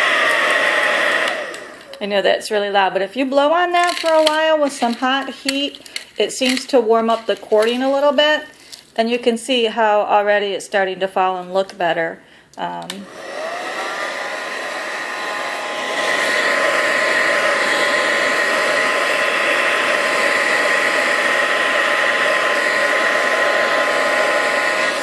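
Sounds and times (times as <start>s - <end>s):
hair dryer blowing: 0.0s - 2.0s, 13.0s - 25.0s.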